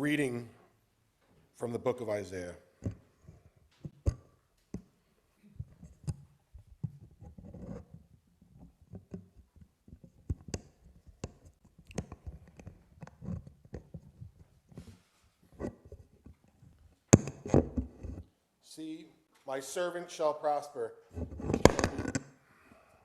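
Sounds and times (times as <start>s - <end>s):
small clicks and knocks: 5.6s - 14.9s, 15.5s - 18.3s, 21.1s - 22.3s.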